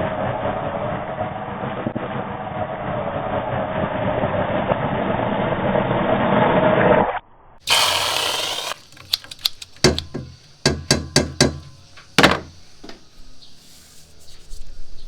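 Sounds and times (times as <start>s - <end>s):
sharp taps and clicks: 8.8s - 11.8s.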